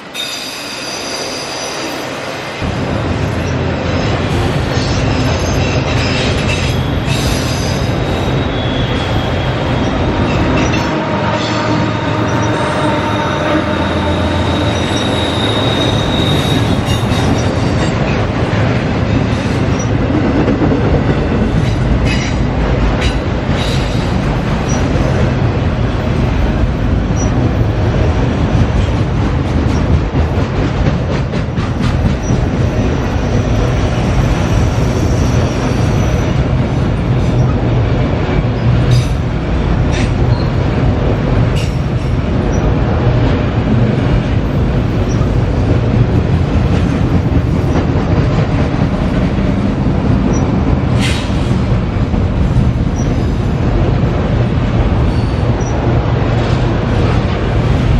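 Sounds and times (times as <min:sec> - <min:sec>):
train wheels rumbling on track: 0:00.0 - 0:57.9
wheel squeal: 0:12.3 - 0:17.6, 0:34.6 - 0:36.4.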